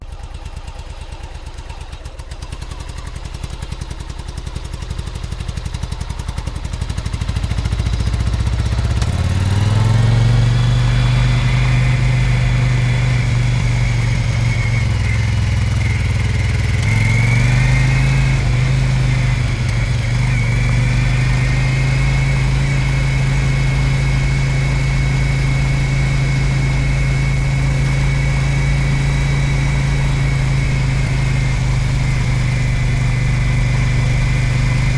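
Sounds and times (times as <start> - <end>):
motorcycle engine idling and pulling away: 0.0 - 34.9.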